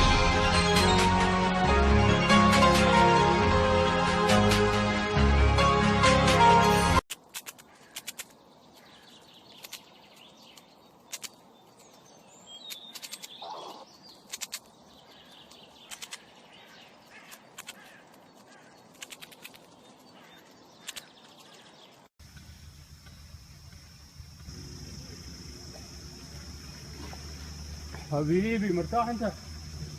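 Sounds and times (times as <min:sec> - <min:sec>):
sharp clicks: 0:07.1 - 0:08.4, 0:10.5 - 0:11.4, 0:12.6 - 0:13.5, 0:14.2 - 0:14.7, 0:15.8 - 0:16.3, 0:17.3 - 0:17.9, 0:18.9 - 0:19.8, 0:20.8 - 0:21.4
birds chirping: 0:07.5 - 0:29.9.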